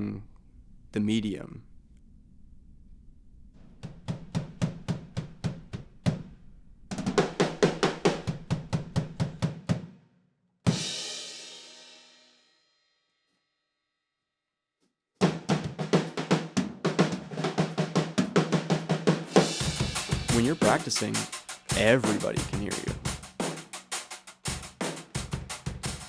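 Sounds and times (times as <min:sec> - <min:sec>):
drum kit playing: 0:03.8 - 0:06.3, 0:06.9 - 0:09.9, 0:10.7 - 0:11.8, 0:15.2 - 0:26.0.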